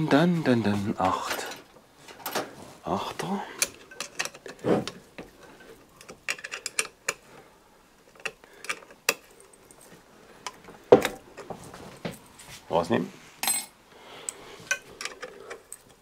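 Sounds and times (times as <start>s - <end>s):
metal parts clinking: 3.6s - 4.6s, 6.0s - 7.2s.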